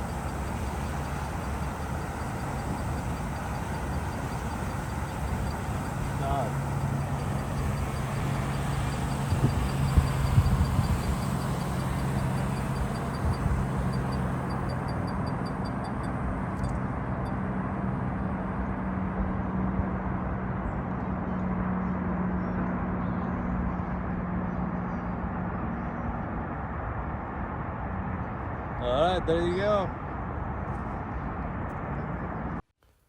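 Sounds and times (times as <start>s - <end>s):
low steady hum: 0.0s - 18.5s
distant traffic: 0.0s - 32.6s
wind: 0.0s - 33.0s.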